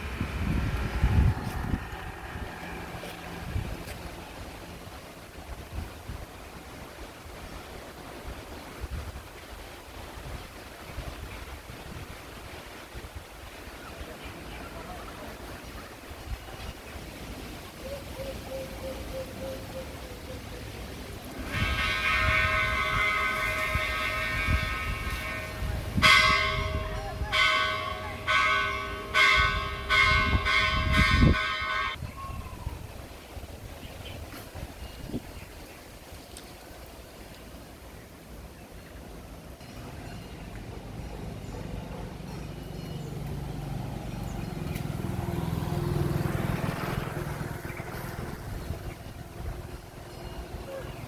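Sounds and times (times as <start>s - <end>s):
vehicle passing by: 0.0s - 5.8s, 40.8s - 50.1s
low rumbling: 0.0s - 6.8s, 38.1s - 51.0s.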